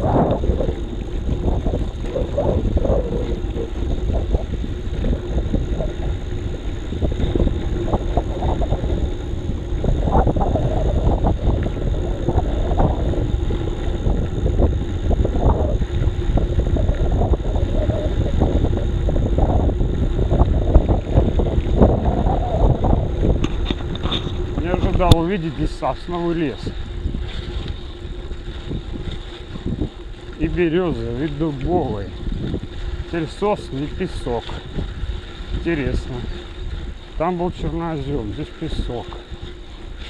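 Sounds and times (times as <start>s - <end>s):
wind on microphone: 0.0s - 40.0s
bicycle knocks and rattles: 23.1s - 25.3s.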